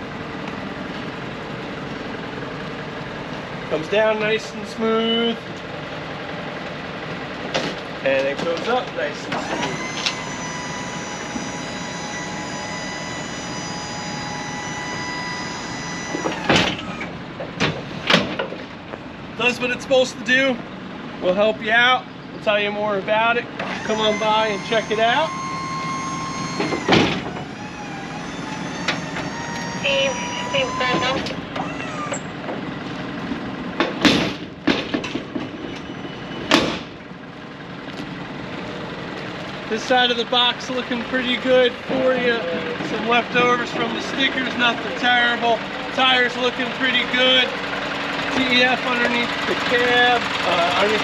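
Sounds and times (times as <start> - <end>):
hydraulic pump whining: 7.4 - 20.0, 23.4 - 37.2, 39.7 - 51.0.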